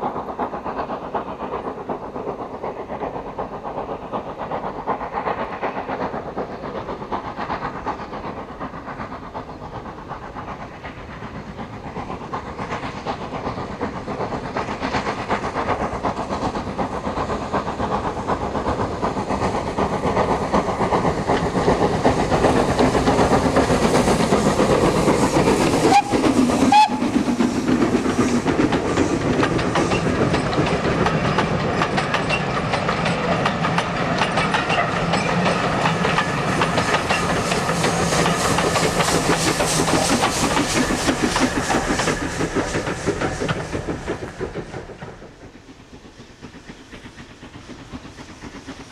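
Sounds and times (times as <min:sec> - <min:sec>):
steam locomotives working hard: 0:00.0 - 0:48.9
steam whistle: 0:25.9 - 0:27.1.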